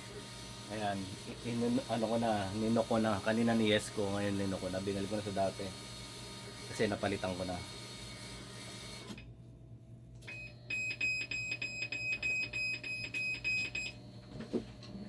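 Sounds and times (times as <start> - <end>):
high alarm beeps: 10.3 - 14.0.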